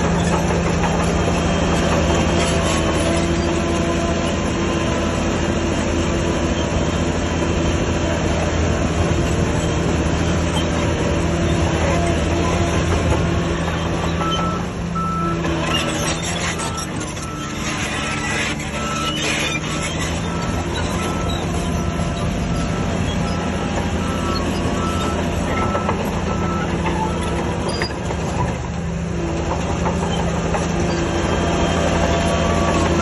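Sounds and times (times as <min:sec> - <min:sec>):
heavy diesel engine running: 0:00.0 - 0:33.0
reversing beeper: 0:16.4 - 0:27.3.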